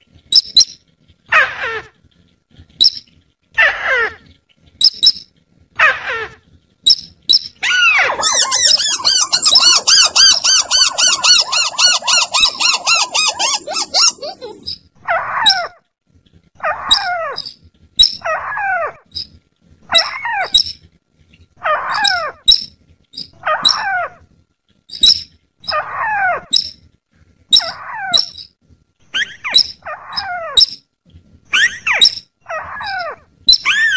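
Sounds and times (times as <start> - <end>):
harsh falling bird call: 7.6 - 14.7
high sharp bird chip: 8.0 - 14.8.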